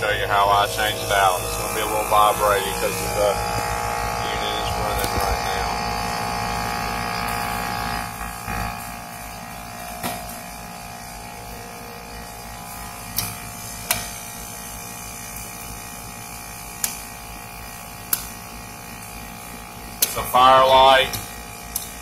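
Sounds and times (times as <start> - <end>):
air conditioner humming: 0.0 - 22.0.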